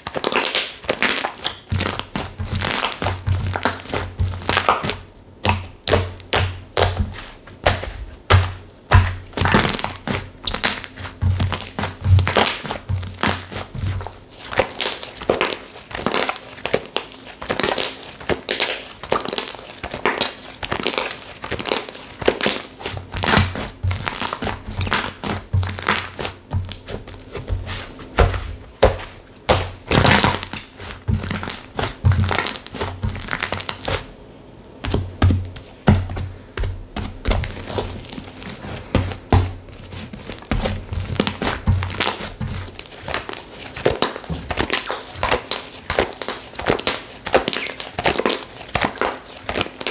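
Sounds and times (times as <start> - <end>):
slime crackling and popping: 0.0 - 34.1, 34.8 - 49.9.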